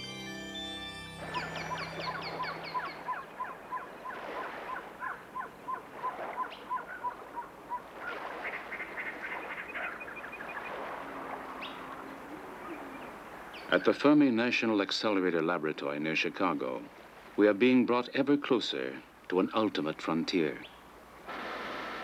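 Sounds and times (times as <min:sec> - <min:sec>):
birds calling: 0:00.6 - 0:14.1
high bird chirps: 0:01.2 - 0:07.8.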